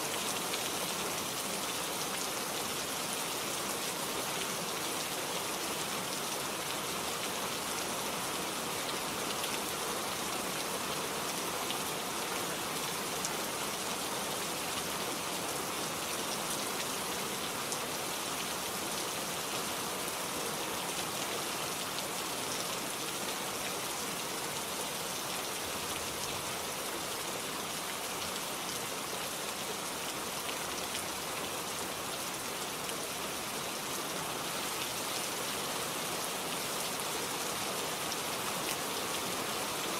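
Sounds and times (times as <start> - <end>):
rain on foliage: 0.0 - 39.9.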